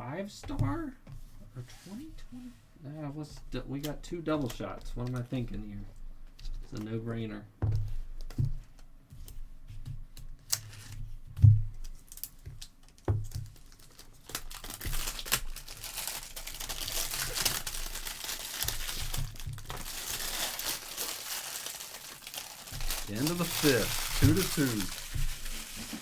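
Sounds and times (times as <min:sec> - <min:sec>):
plastic wrapping crinkling and tearing: 0:11.8 - 0:26.0.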